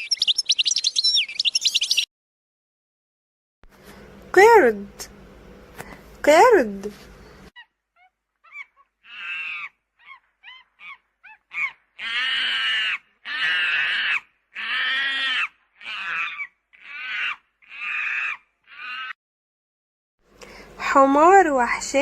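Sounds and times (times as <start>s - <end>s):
monkey chirps: 0.0s - 2.0s, 7.6s - 19.2s
monkey screeches: 7.6s - 19.2s.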